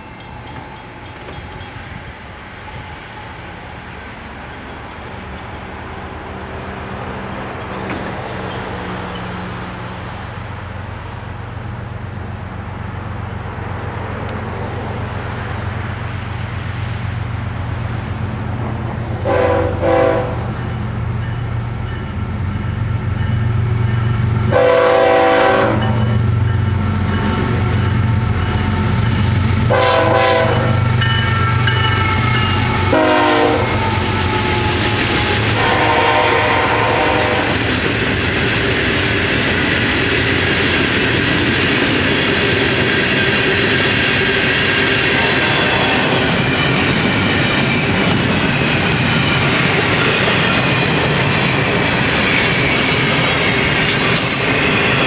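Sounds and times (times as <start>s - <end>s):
locomotive engine rumble: 0.0s - 55.0s
locomotive air horn blasts: 19.2s - 20.6s, 24.5s - 26.2s, 29.7s - 37.6s, 45.4s - 46.2s.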